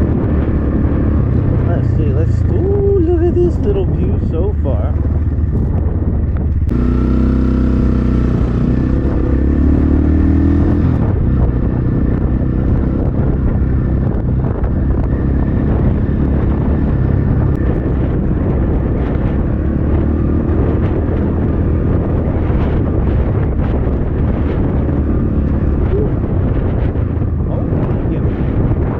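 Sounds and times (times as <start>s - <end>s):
dirt bike engine running: 0.0s - 28.9s
wind rumble on microphone: 0.0s - 28.9s.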